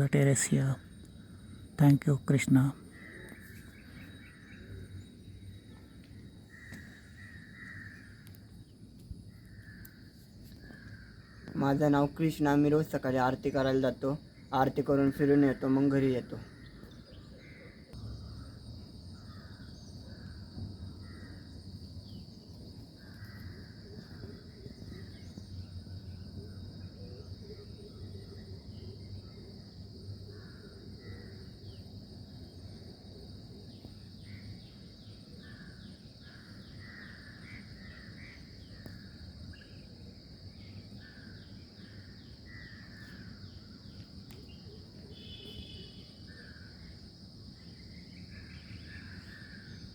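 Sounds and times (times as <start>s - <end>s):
high insect drone: 0.0s - 49.9s
bird chirps: 0.1s - 8.8s
crows cawing: 6.5s - 8.4s, 23.0s - 23.7s.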